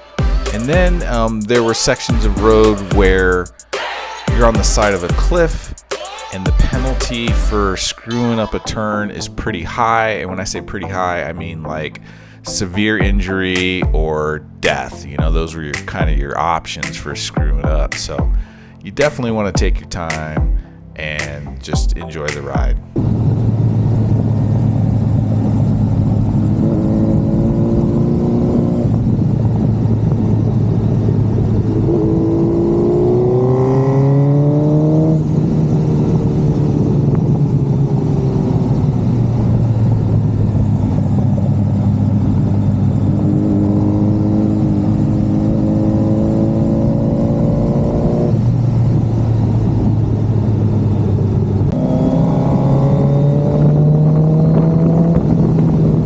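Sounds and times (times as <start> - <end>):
motorcycle engine accelerating: 23.0 - 56.0.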